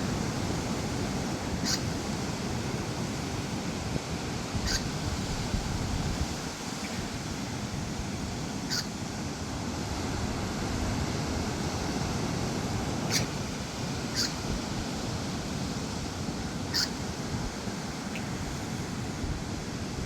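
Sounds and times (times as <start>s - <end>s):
ocean surf: 0.0s - 20.0s
wind: 0.0s - 20.0s
high bird calls: 1.6s - 2.0s, 4.6s - 5.0s, 6.7s - 9.0s, 12.7s - 14.8s, 16.7s - 17.1s, 17.9s - 18.4s.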